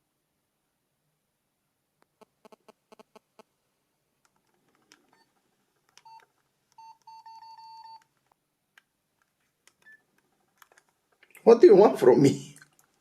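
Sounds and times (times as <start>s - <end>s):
phone keys clicking: 9.6s - 11.3s.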